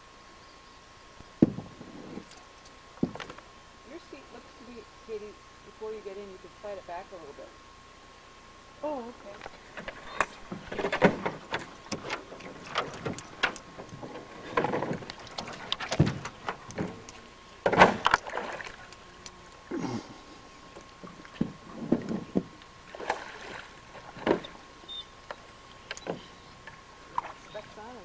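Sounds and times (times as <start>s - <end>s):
knocks against canoe hull: 1.4s - 1.8s, 14.4s - 17.0s.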